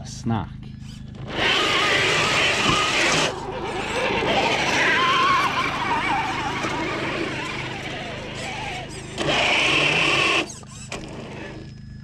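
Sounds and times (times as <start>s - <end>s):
electric motor and gearbox whine: 0.7s - 12.0s
tyres churning wet ground: 1.2s - 10.5s.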